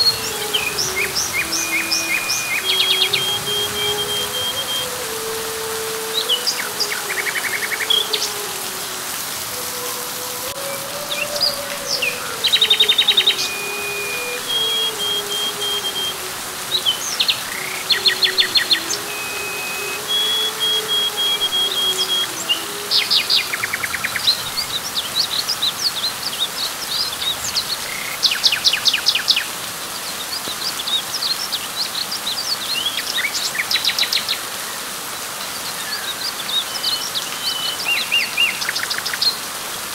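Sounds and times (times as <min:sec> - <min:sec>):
birds trilling and whistling: 0:00.0 - 0:29.5
rain falling on leaves: 0:00.0 - 0:39.9.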